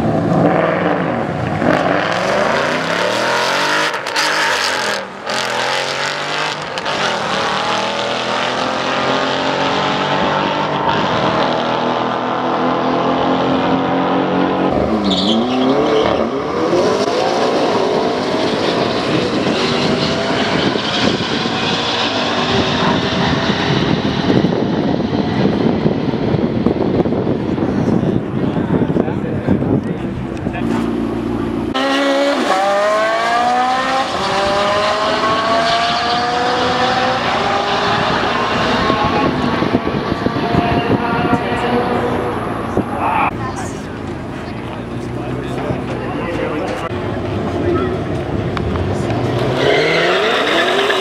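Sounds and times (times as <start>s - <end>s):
race car engines revving: 0.0s - 51.0s.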